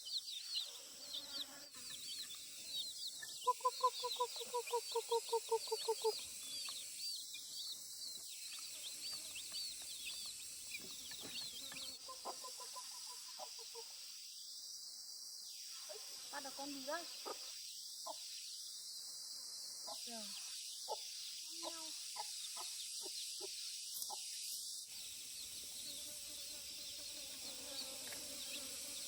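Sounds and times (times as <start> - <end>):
chicks peeping: 1.8 - 13.8
chicken clucking: 10.8 - 14.0.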